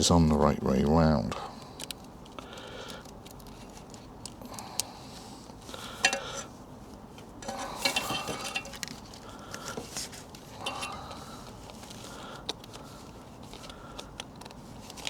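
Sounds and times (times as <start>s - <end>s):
metal bolts clinking: 6.0s - 6.4s, 7.4s - 9.0s.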